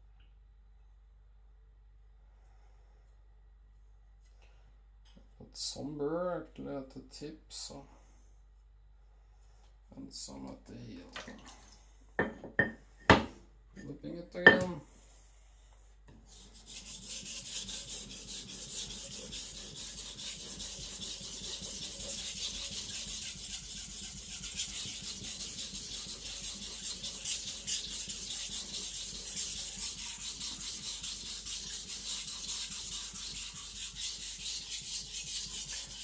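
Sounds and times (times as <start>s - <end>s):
knife scraping on whetstone: 16.3s - 36.0s.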